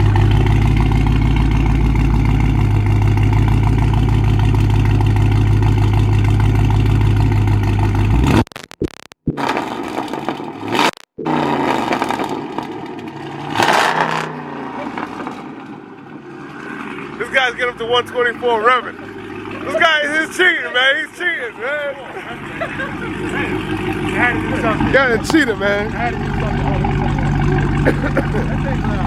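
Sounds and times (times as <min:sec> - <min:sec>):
loud car exhaust at held revs: 0:09.4 - 0:15.6, 0:16.2 - 0:20.4, 0:22.4 - 0:29.0.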